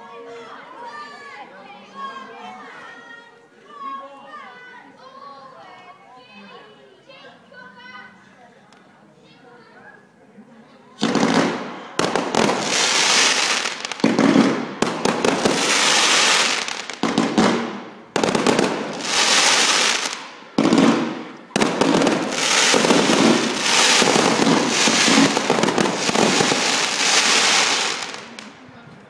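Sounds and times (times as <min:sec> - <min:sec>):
fireworks bangs and bursts: 0:11.0 - 0:28.5
fireworks crackling: 0:11.0 - 0:28.7.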